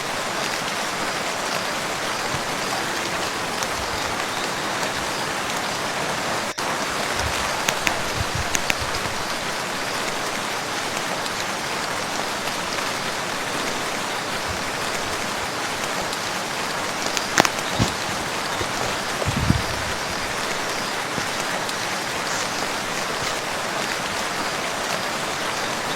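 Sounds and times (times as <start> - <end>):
rain falling on a lake: 0.0 - 25.9
raindrops splashing close by: 0.0 - 25.9.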